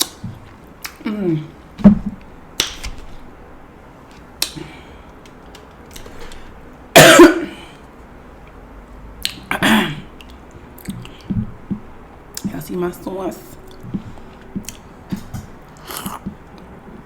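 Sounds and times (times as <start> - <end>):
noisy eating bursts: 13.5 - 16.8.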